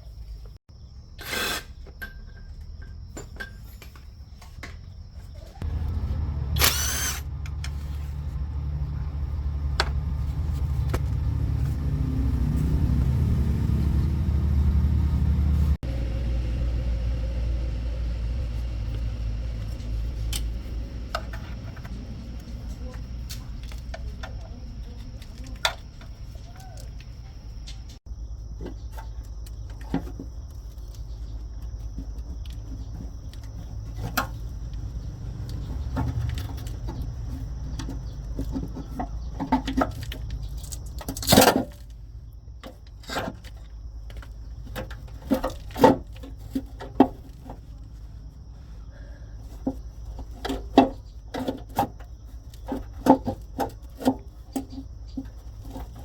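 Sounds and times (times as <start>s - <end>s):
steady low hum: 4.9s - 39.5s.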